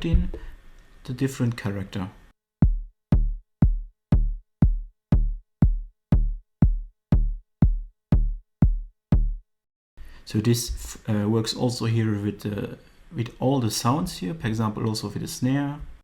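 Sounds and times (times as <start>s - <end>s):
electronic kick drum pattern: 0.0s - 0.5s, 2.6s - 9.4s.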